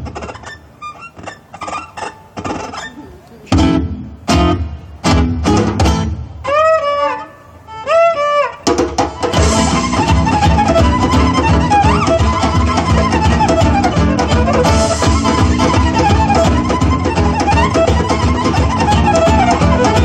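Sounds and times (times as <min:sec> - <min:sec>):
fast gypsy band playing: 0:03.5 - 0:07.3, 0:07.9 - 0:20.0
strummed chords: 0:03.5 - 0:20.0
sliding violin phrases: 0:05.9 - 0:20.0.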